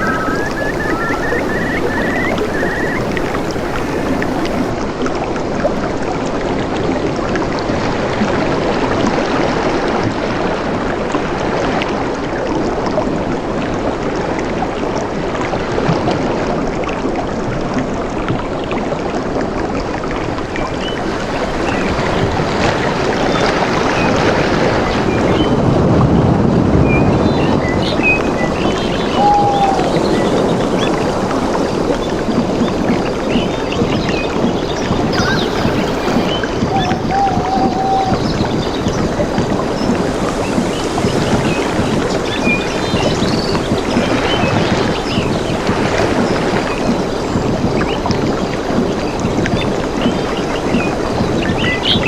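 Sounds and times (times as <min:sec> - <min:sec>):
bird chirping: 0:00.0 - 0:04.7, 0:35.1 - 0:38.3
flowing water rushing: 0:00.0 - 0:10.4, 0:33.6 - 0:47.4.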